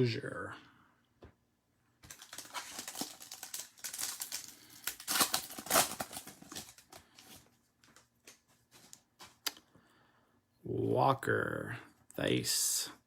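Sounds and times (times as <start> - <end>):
foil wrapper crinkling and tearing: 2.0 - 7.5
cards rustling and clicking: 2.0 - 9.5.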